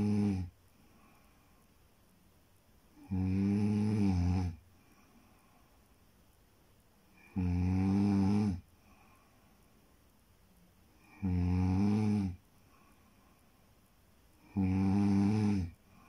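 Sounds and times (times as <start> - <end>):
person snoring: 0.0 - 0.5, 3.0 - 4.6, 7.2 - 8.6, 11.0 - 12.4, 14.4 - 15.8.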